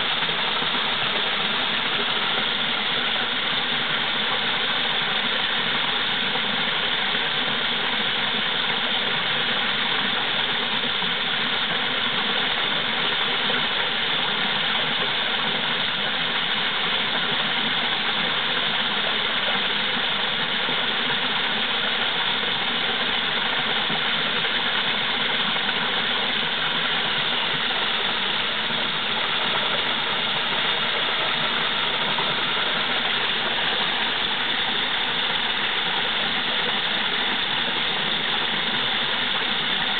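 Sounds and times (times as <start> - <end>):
waterfall pouring: 0.0 - 39.9.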